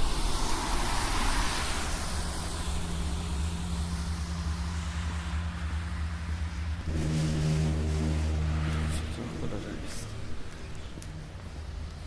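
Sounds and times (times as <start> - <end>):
low droning hum: 0.0 - 12.0
rich pitched tone: 6.9 - 10.2.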